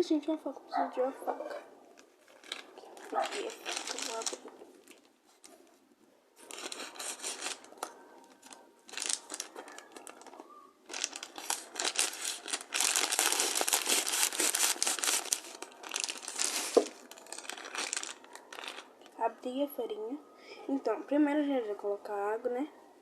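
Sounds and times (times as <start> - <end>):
packaging crinkling and tearing: 2.0 - 5.5, 6.4 - 19.2.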